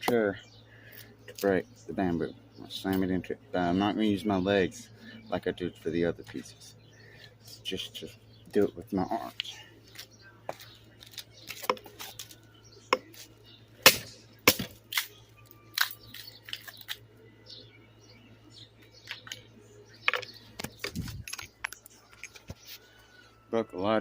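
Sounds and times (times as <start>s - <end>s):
bamboo cracking and snapping: 11.0s - 12.4s, 13.8s - 17.0s.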